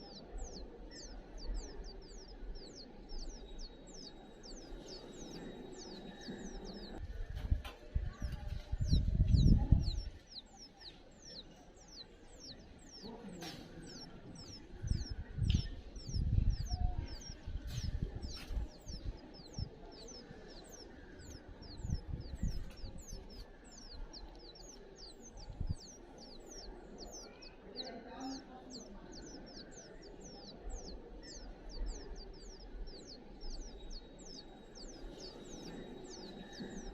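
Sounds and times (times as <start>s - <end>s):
small birds chirping: 0.0s - 36.9s
low rumbling bumps: 7.0s - 10.3s.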